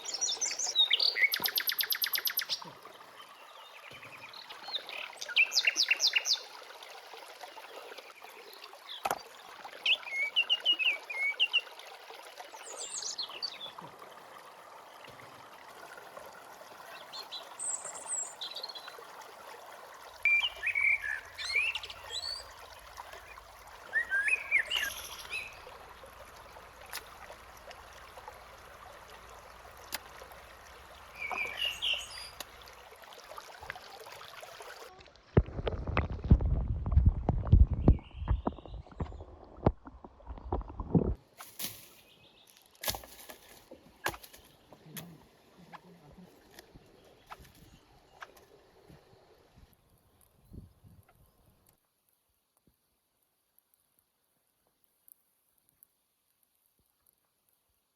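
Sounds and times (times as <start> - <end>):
wild birds chirping: 0.0 - 6.6, 9.8 - 11.8, 20.2 - 32.9.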